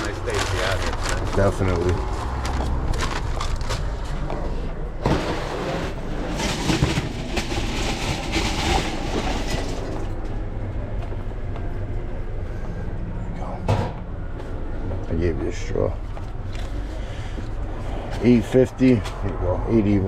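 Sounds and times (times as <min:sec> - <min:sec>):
low mechanical drone: 0:00.0 - 0:20.0
clattering and rustling: 0:05.0 - 0:10.4.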